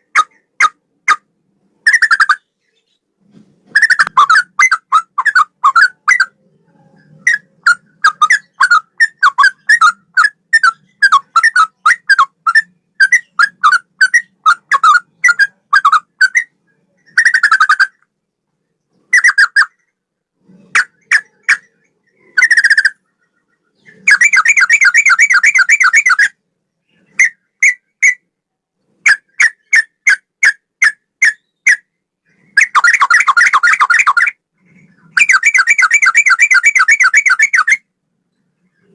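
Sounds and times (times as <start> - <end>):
rapid bird trill: 0.0 - 3.0, 3.7 - 18.1, 18.9 - 28.3, 29.0 - 38.9
bird singing whistled notes: 3.7 - 18.0, 20.8 - 28.3, 29.1 - 34.4, 35.0 - 37.9.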